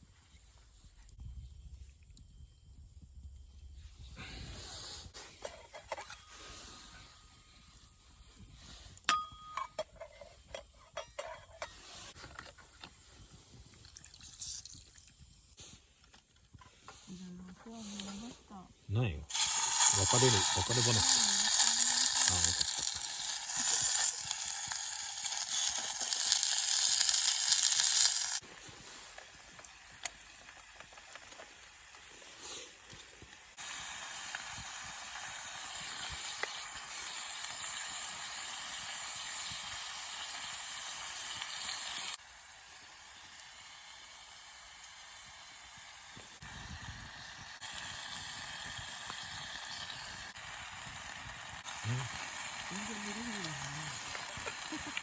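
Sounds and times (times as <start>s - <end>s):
faint fire crackle: 0.0s - 11.0s, 11.6s - 55.0s
campfire hissing: 17.7s - 55.0s.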